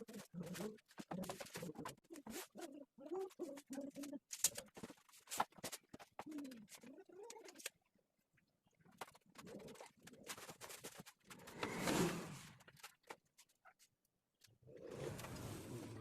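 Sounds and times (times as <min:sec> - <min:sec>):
dove cooing: 0:00.0 - 0:04.2, 0:06.2 - 0:07.7.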